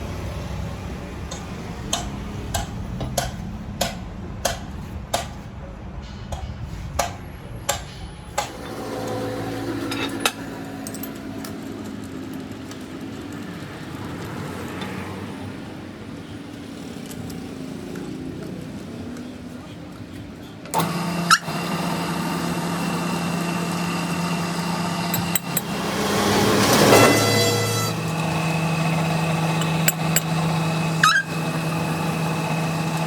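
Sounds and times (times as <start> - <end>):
machine running with light clatter: 0.0 - 15.4, 16.2 - 33.0
metal clinks: 9.8 - 14.1.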